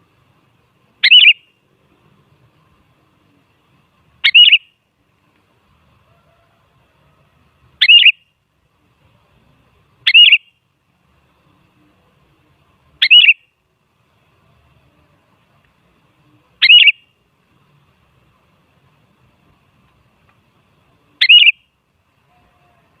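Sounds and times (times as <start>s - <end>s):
bird giving sharp calls: 1.0s - 1.5s, 4.2s - 4.7s, 7.8s - 8.2s, 10.0s - 10.5s, 13.0s - 13.5s, 16.6s - 17.0s, 21.2s - 21.6s.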